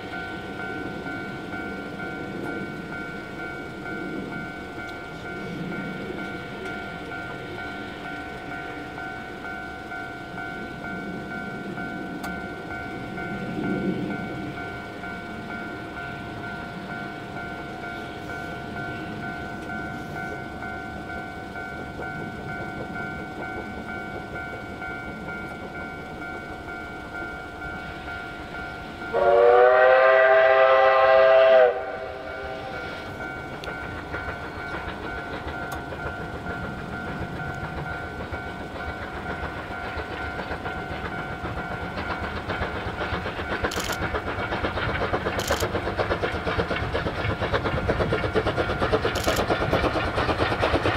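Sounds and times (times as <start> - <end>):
train running rumble: 0.0 - 50.9
train whistle blast: 29.0 - 33.2.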